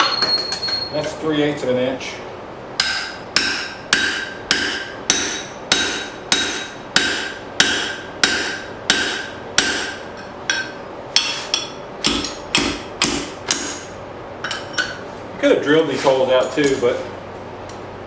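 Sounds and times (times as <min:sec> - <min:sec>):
hammer blows ringing on steel: 0:02.8 - 0:13.9.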